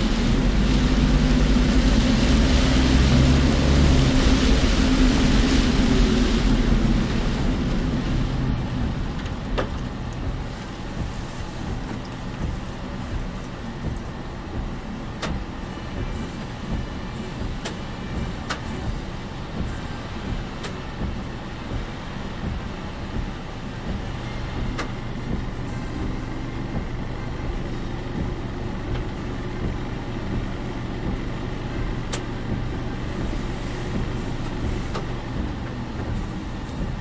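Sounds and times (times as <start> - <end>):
car road and engine noise: 0.0 - 37.0.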